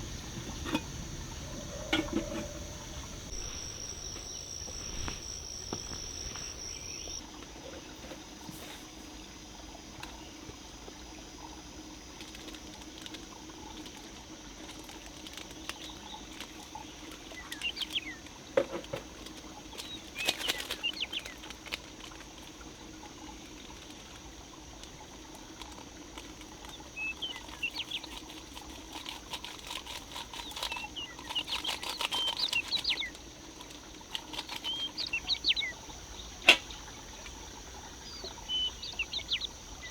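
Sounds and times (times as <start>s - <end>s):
campfire crackling and popping: 0.0s - 7.2s
short high squeaks and chirps: 2.3s - 7.2s.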